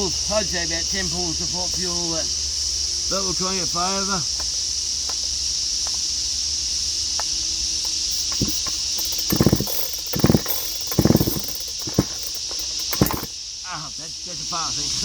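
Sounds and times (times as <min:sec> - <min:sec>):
steady high-pitched hiss: 0:00.0 - 0:15.0
chainsaw recoil starter pulls: 0:08.2 - 0:13.3.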